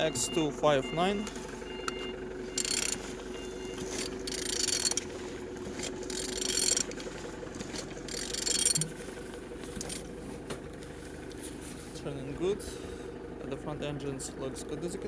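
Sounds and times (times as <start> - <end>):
engine turned over by hand: 0.0 - 15.0.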